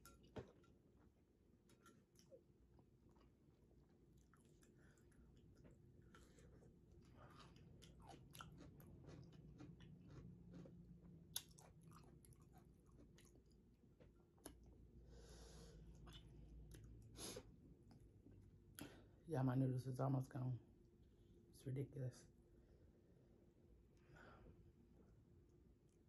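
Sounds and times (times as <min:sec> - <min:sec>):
wet crunchy chewing: 0:04.1 - 0:13.7.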